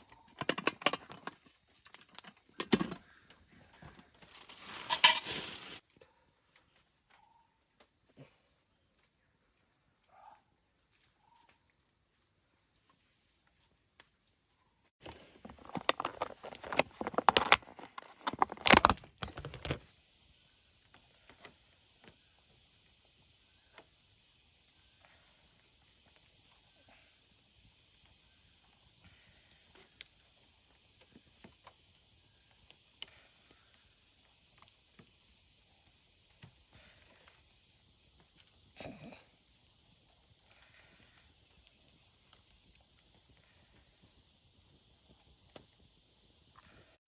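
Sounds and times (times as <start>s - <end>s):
insect droning: 0.0s - 47.0s
faint hiss: 19.2s - 47.0s.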